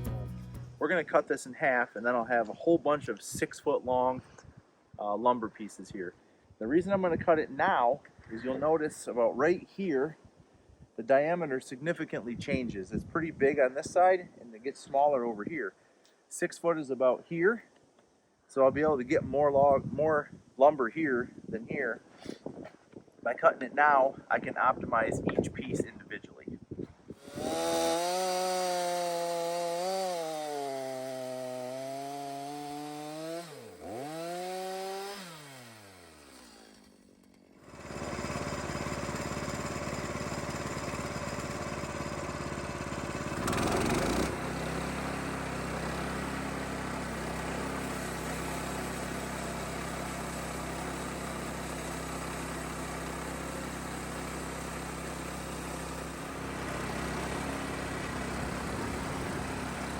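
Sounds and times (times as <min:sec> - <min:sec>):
chainsaw cutting log: 0:27.2 - 0:59.9.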